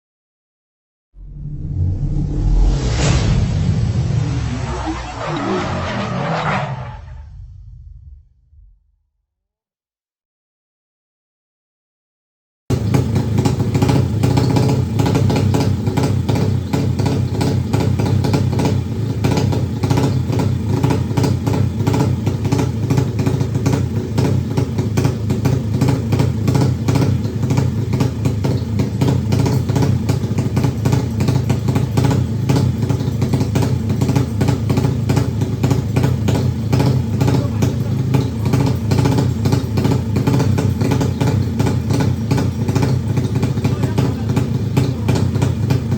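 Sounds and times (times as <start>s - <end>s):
motorcycle engine idling: 12.7s - 45.9s.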